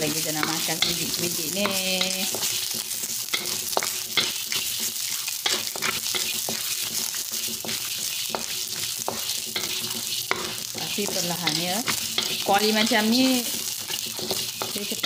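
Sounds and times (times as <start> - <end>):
spatula scraping and tapping pan: 0.0 - 15.0
spices sizzling in hot oil: 0.0 - 15.0.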